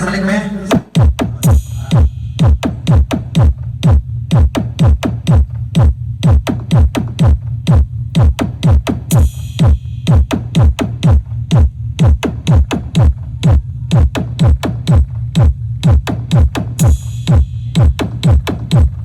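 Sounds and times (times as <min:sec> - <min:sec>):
electronic dance music: 0:00.0 - 0:03.5
heavy kick drum: 0:00.7 - 0:19.0
deep bass: 0:00.8 - 0:19.0.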